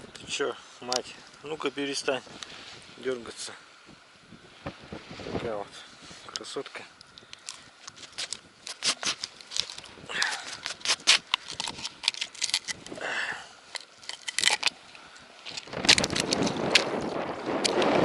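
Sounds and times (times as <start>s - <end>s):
wind buffeting microphone: 1.9s - 5.8s, 14.4s - 18.0s
handling clicks and rattles: 7.1s - 13.0s, 13.7s - 14.8s, 15.4s - 17.9s.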